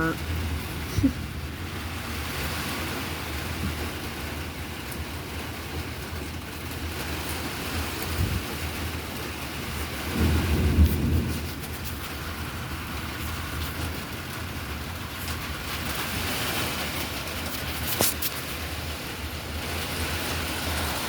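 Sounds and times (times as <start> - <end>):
low thunder rumble: 0.0 - 4.4, 8.1 - 17.5
heavy rain falling: 0.0 - 21.0.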